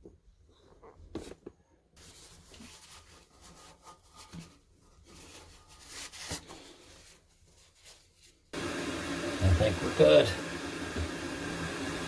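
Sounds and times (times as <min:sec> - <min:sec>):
water hissing into toilet tank: 0:08.6 - 0:12.0.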